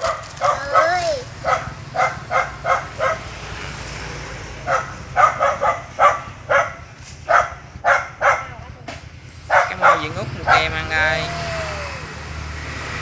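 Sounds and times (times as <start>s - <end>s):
dog yipping and barking: 0.0s - 3.3s, 4.6s - 8.6s, 9.5s - 10.8s.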